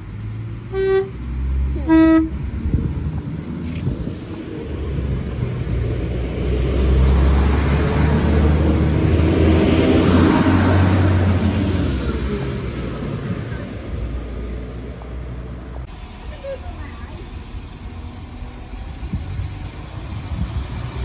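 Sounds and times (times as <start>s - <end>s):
train engines and wheels running: 0.0s - 21.0s
two-tone train horn: 0.7s - 1.2s, 1.8s - 2.4s.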